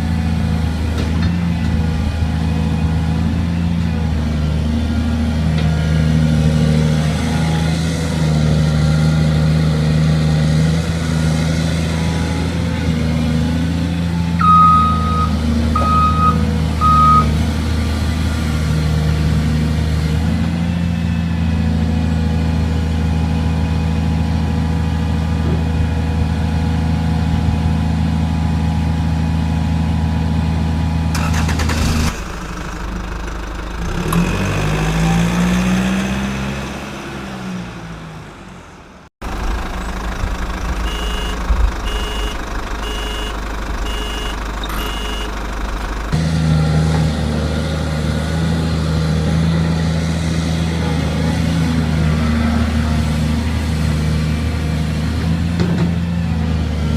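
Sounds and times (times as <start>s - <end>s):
truck engine running: 0.0s - 56.9s
truck reversing beeps: 14.0s - 17.4s, 39.4s - 46.0s
short beeps: 14.4s - 17.3s, 40.8s - 45.4s.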